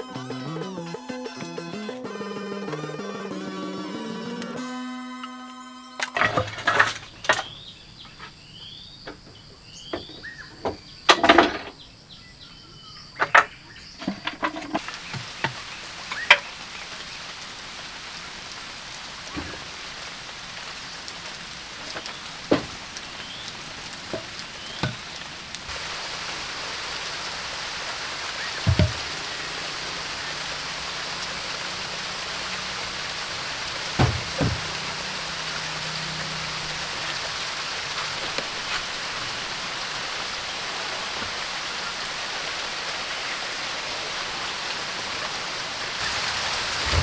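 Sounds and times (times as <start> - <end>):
knocks and clatters of hand work: 10.0 - 11.8, 33.9 - 35.0
high insect drone: 25.8 - 39.1.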